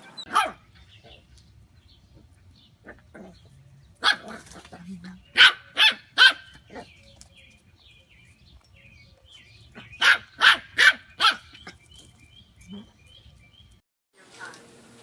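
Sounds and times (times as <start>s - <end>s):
loud dog-like barks: 0.3s - 0.6s, 4.0s - 4.5s, 5.4s - 6.9s, 9.9s - 11.6s.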